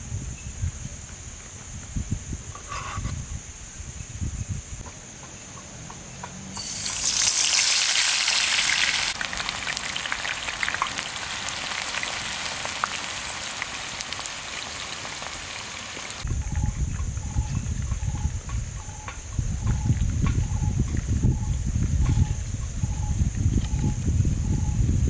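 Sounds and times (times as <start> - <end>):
oil crackling and popping: 6.5 - 16.2
food sizzling in hot oil: 6.5 - 16.3.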